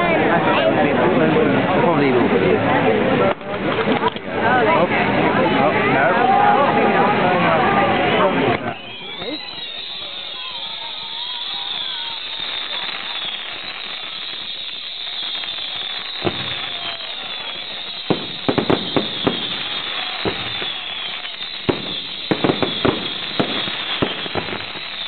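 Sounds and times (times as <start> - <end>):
fireworks crackling hiss: 8.4 - 25.0
fireworks sharp bangs: 9.0 - 25.0.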